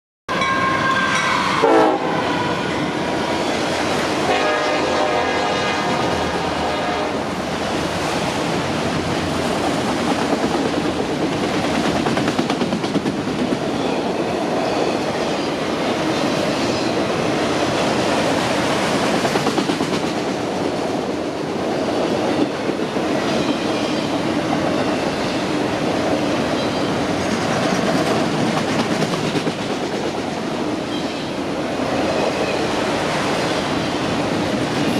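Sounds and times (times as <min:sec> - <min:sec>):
train horn: 0:00.3 - 0:03.0, 0:04.2 - 0:07.4
train rumbling and rattling: 0:00.3 - 0:34.9
train wheels clickety-clack: 0:09.4 - 0:34.9.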